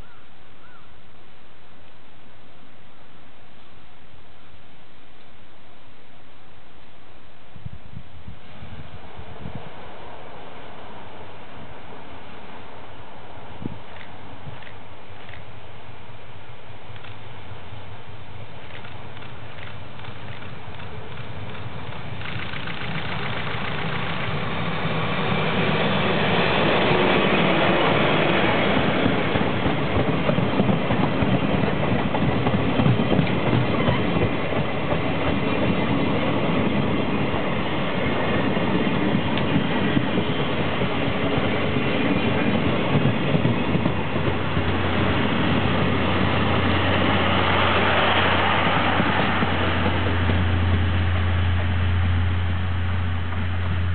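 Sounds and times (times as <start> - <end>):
train wheels rumbling and clicking: 13.6 - 15.8, 16.8 - 53.9.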